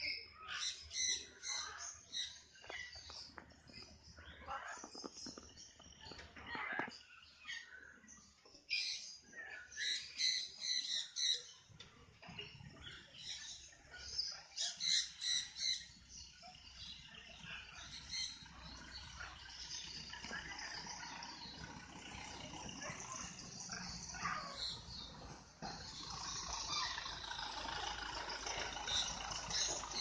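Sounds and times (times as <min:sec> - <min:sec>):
parrots chattering: 0:12.5 - 0:30.0.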